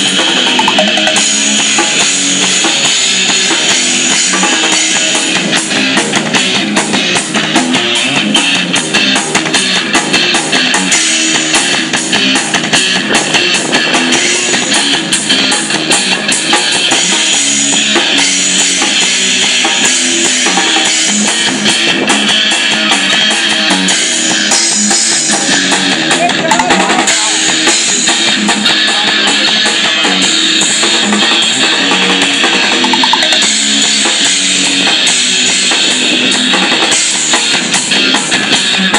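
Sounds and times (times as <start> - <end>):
guitars playing: 0.0 - 11.5, 32.7 - 33.8
bass line: 0.0 - 24.3, 28.4 - 34.8
drum kit: 0.0 - 38.9
rock music: 0.0 - 38.9.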